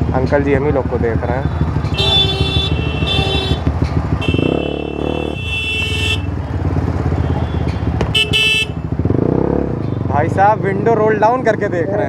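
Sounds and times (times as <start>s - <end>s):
motorcycle engine with loud exhaust: 0.0s - 12.0s
vehicle horns: 1.3s - 9.1s.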